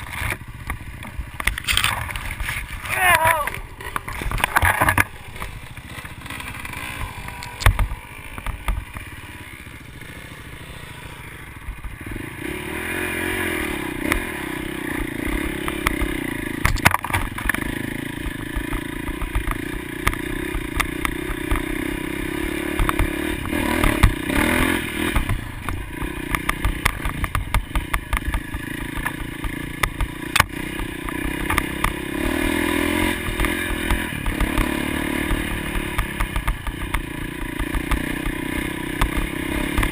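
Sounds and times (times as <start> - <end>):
motocross motorcycle engine running: 0.0 - 39.9.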